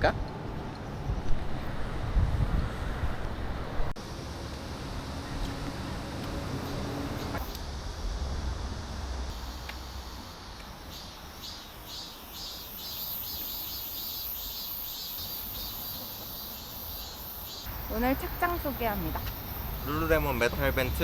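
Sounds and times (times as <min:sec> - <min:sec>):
wind rumble on microphone: 0:00.2 - 0:03.9
insects chirping in pulses: 0:06.4 - 0:21.0.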